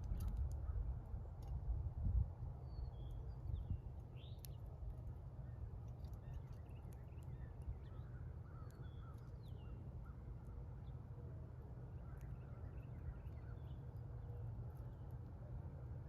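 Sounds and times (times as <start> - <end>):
small birds chirping: 2.6 - 11.1, 11.8 - 15.1.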